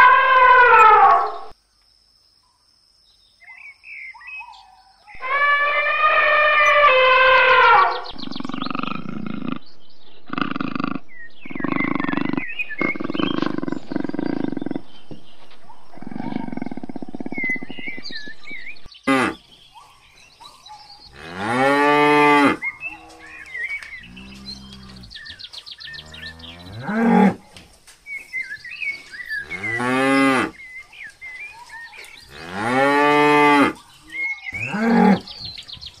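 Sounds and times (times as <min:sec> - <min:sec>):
birds chirping faintly: 0:00.2 - 0:36.0
buffalo lowing: 0:05.2 - 0:19.4, 0:21.2 - 0:27.4
rough low sound: 0:07.8 - 0:19.3.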